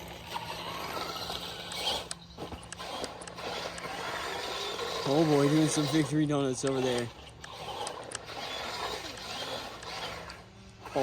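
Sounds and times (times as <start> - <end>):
tyre noise on dirt: 0.0 - 6.0
faint electric motor: 0.0 - 11.0.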